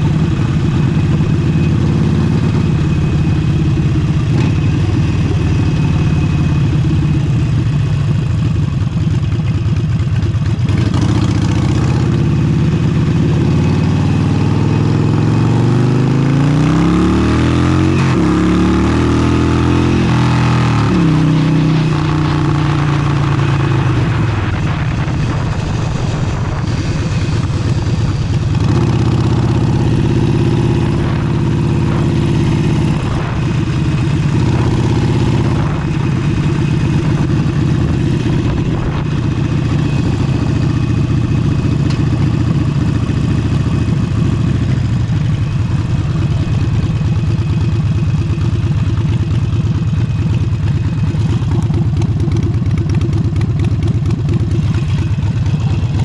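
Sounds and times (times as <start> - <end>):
motorcycle engine revving: 0.0 - 56.0
wind buffeting microphone: 22.9 - 40.4.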